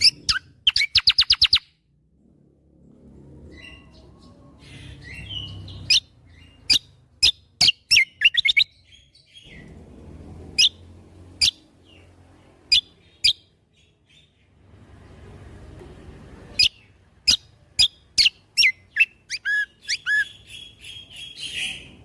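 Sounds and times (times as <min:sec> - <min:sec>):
low steady rumble: 0:09.4 - 0:18.9.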